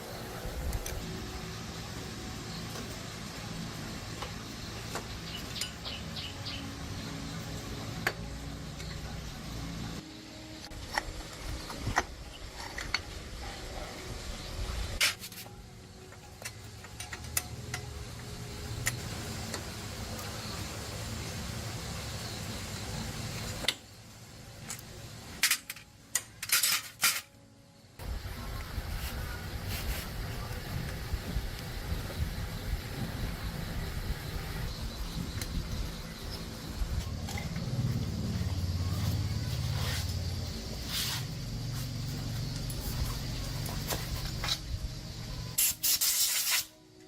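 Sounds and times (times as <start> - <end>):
steady background noise: 0.0 - 47.0
metal parts and tools clinking: 10.9 - 13.3, 15.0 - 18.0, 24.6 - 27.4
steady low hum: 27.7 - 45.6.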